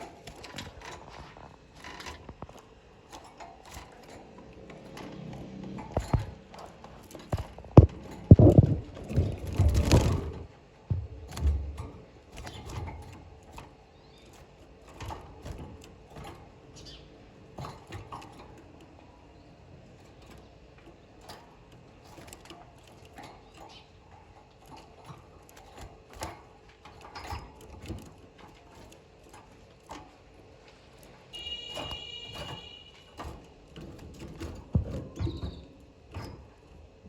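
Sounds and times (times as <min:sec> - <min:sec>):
irregular knocks and taps: 0:07.4 - 0:10.2, 0:10.9 - 0:11.8.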